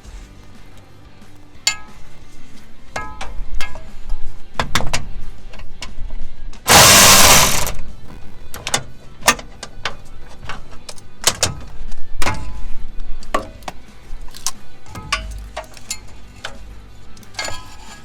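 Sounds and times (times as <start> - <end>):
loud hiss: 6.7 - 7.8.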